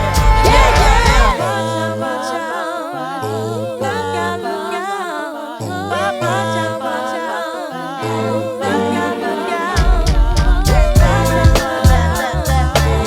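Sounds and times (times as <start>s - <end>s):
held bass notes: 0.0s - 1.4s, 9.8s - 13.0s
wordless vocal harmonies: 0.0s - 13.0s.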